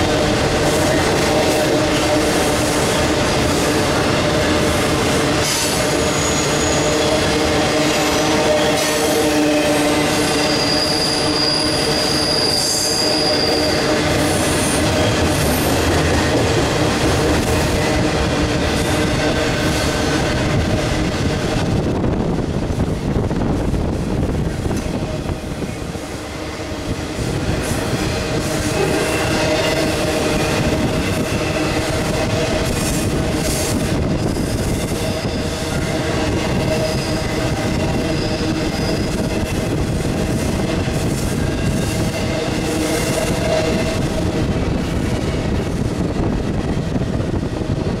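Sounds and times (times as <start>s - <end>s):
train wheels rumbling on rails: 0.0s - 48.0s
wheel squeal: 5.5s - 7.1s, 10.2s - 14.8s, 36.6s - 39.3s.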